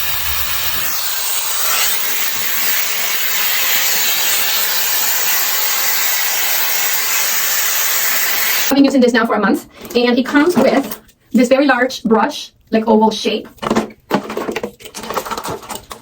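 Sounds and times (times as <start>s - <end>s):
hair dryer blowing air: 0.0s - 8.7s.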